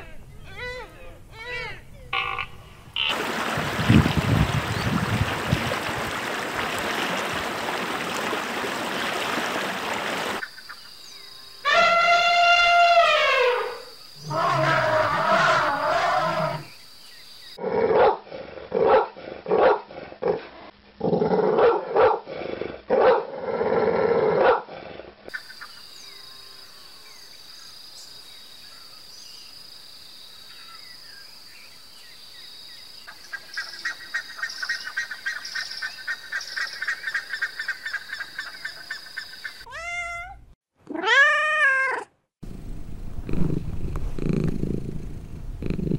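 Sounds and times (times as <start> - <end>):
elephant trumpeting: 11.6 - 16.7
loud harsh animal calls: 11.6 - 16.7
cat meowing: 39.7 - 42.1
cat purring: 42.4 - 45.9.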